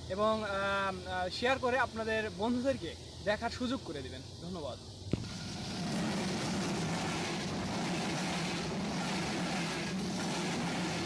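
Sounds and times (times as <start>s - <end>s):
train rumbling past: 5.2s - 11.0s.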